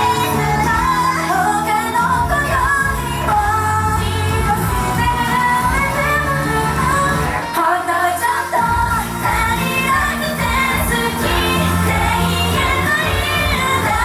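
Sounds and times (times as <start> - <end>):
pop accompaniment: 0.0 - 14.0
women singing pop song: 0.0 - 14.0.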